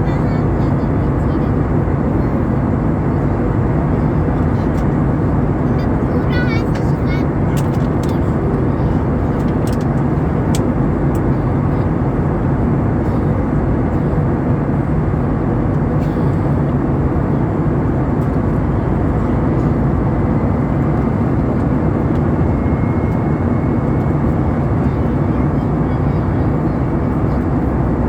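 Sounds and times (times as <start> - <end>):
jet engine drone in cabin: 0.0 - 28.0.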